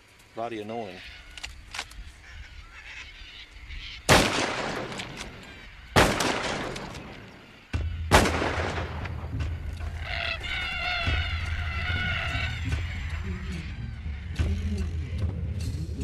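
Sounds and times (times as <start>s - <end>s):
harsh bird calls: 0.3s - 16.0s
echoing rifle shots: 4.1s - 9.4s.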